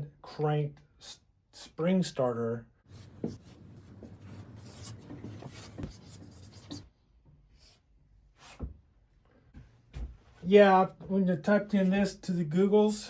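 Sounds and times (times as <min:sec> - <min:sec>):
scratchy rubbing and rustling: 0:02.9 - 0:06.9.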